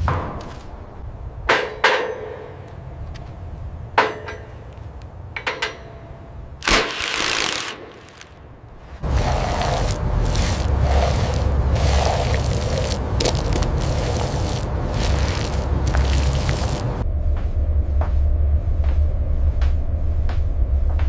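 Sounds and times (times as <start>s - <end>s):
sharp knocks and clangs: 1.5s - 2.7s, 5.3s - 7.1s
rough steady noise: 6.4s - 17.0s.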